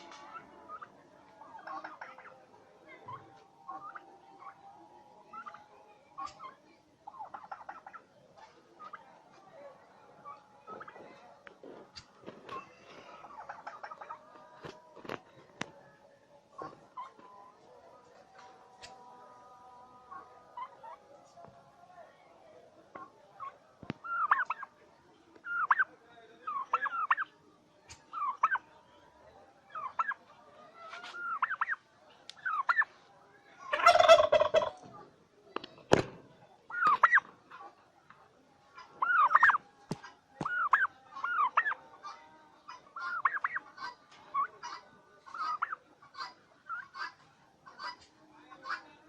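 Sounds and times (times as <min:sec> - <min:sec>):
turkeys calling: 0:00.0 - 0:02.3, 0:03.0 - 0:04.6, 0:05.3 - 0:05.6, 0:06.2 - 0:09.0, 0:11.7 - 0:15.2, 0:22.9 - 0:24.7, 0:25.4 - 0:27.3, 0:27.9 - 0:28.6, 0:29.7 - 0:30.2, 0:30.8 - 0:32.9, 0:33.6 - 0:35.0, 0:36.6 - 0:42.0, 0:42.7 - 0:48.8
harsh gobble call: 0:03.0 - 0:04.6, 0:06.2 - 0:08.1, 0:13.2 - 0:14.2, 0:22.9 - 0:24.7, 0:25.4 - 0:27.3, 0:27.9 - 0:28.6, 0:29.7 - 0:30.2, 0:30.8 - 0:31.8, 0:32.4 - 0:32.9, 0:33.6 - 0:34.9, 0:36.7 - 0:38.2, 0:38.8 - 0:48.8.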